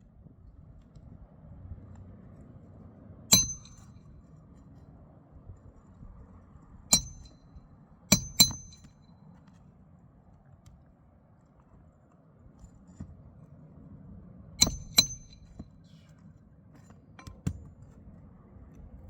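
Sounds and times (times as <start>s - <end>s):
metal-on-metal strikes: 3.3s - 4.0s, 6.9s - 7.5s, 8.1s - 8.9s, 14.6s - 15.6s.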